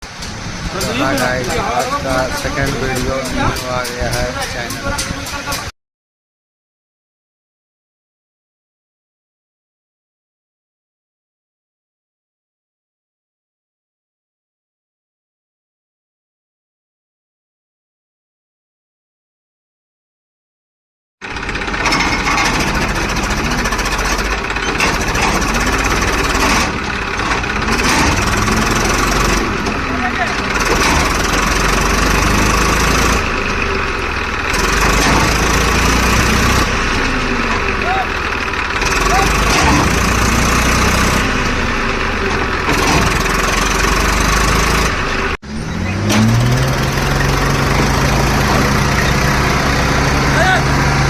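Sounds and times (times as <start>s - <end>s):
heavy vehicle engine running: 0.0s - 5.7s, 21.2s - 51.0s
rapid knocking rattle: 21.2s - 32.8s.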